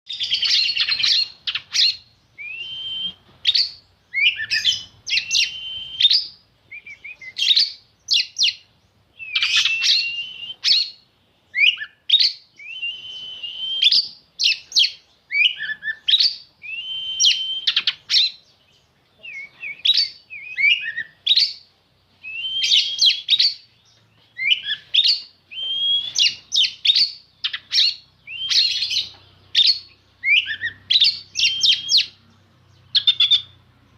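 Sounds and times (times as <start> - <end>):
bird singing varied phrases: 0.1 - 33.9.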